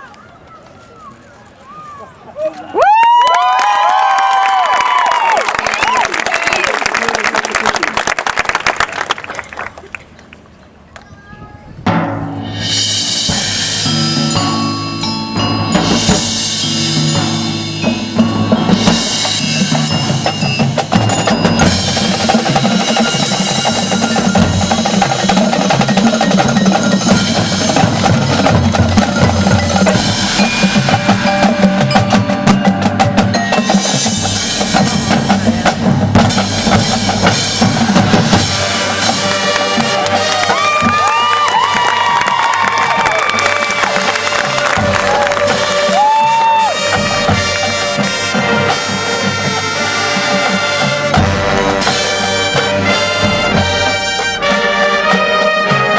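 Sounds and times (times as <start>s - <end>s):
bass and snare drums: 11.8s - 55.9s
marching band playing: 11.8s - 55.9s.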